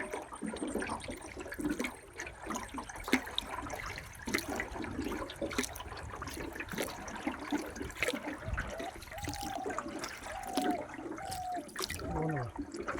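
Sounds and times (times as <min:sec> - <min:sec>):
water splashing around boat: 0:00.0 - 0:12.9.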